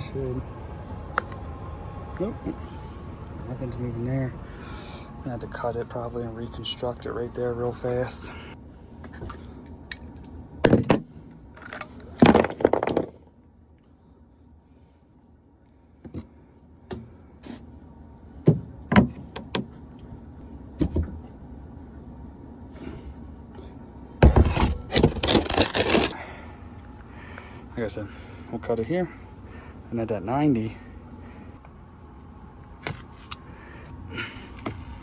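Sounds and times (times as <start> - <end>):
tools and plastic pipe rattling: 24.2 - 26.1.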